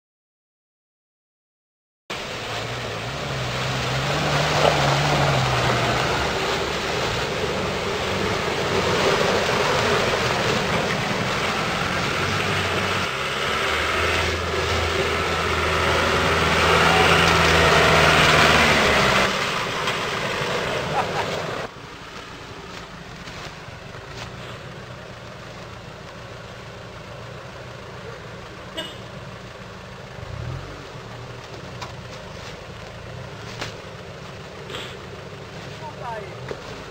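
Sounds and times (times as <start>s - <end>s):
heavy rushing noise: 2.1s - 24.8s
diesel engine working: 2.1s - 36.9s.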